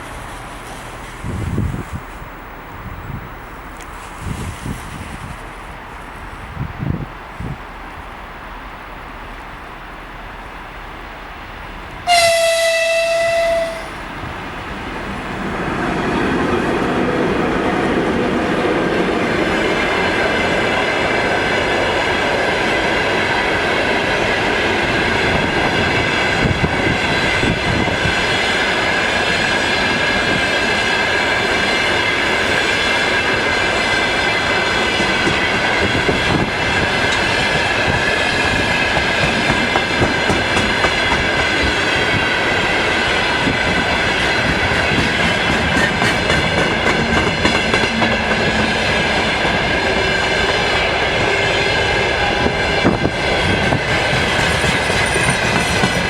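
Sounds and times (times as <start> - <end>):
wheels ringing on rails: 15.1 - 56.0
train wheels clattering: 17.9 - 56.0.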